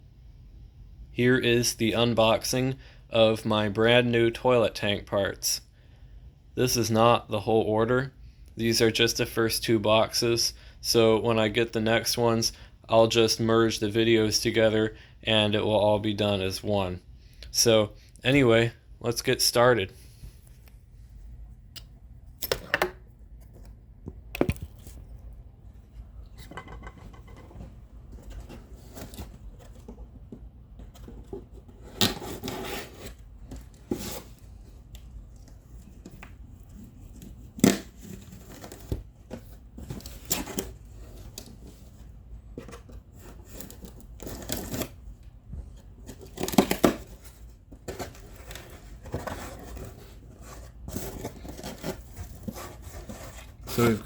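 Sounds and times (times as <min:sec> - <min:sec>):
cardboard tearing: 0:46.0 - 0:47.2.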